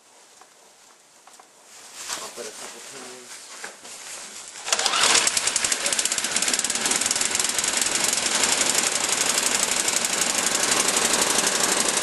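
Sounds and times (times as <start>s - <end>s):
snow blower engine idling: 4.7s - 12.0s.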